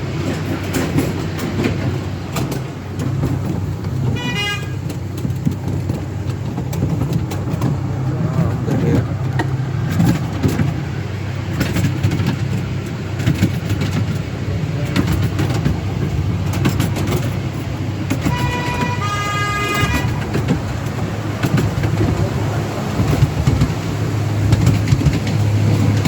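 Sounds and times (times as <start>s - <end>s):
miniature train rumbling: 0.0s - 26.0s
wheels clicking on track: 0.0s - 26.0s
locomotive toot: 3.0s - 11.9s, 14.6s - 26.0s.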